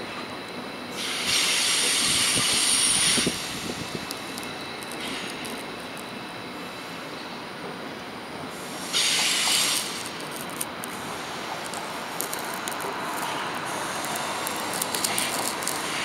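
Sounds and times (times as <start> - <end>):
trains rolling over tracks: 0.0 - 16.0
wheels clicking on rails: 8.8 - 16.0.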